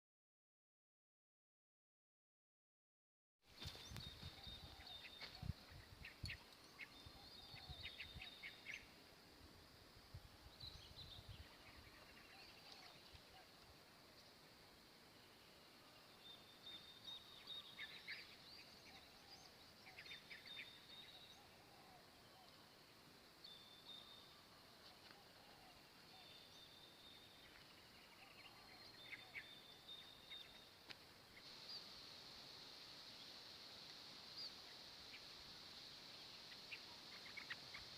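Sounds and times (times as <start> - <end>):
small birds chirping: 3.5 - 9.1, 10.4 - 37.9.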